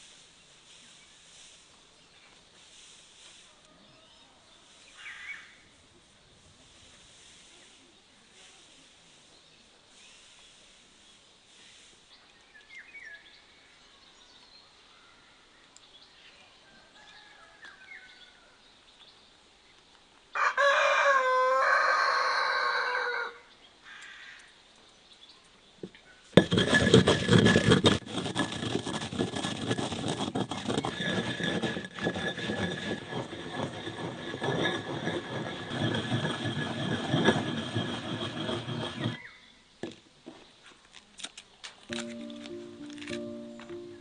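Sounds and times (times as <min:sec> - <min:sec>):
rooster crowing: 0:20.4 - 0:23.4.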